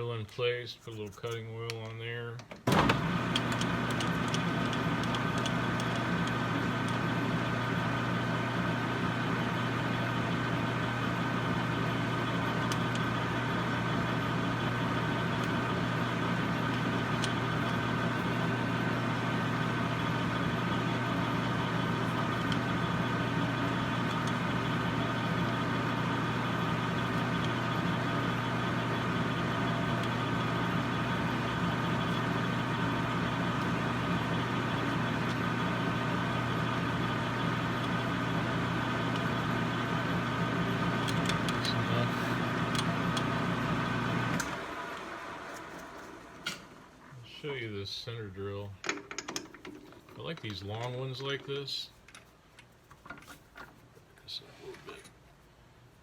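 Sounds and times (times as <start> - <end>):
metal lathe humming and whining: 3.0 - 46.2.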